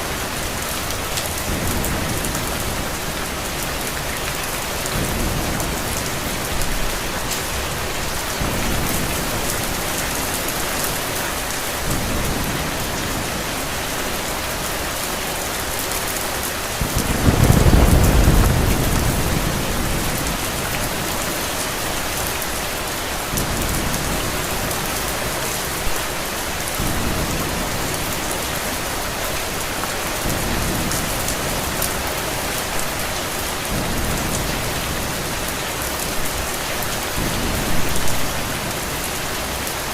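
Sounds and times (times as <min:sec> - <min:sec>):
heavy rain: 0:00.0 - 0:39.9
low roll of thunder: 0:16.8 - 0:21.5.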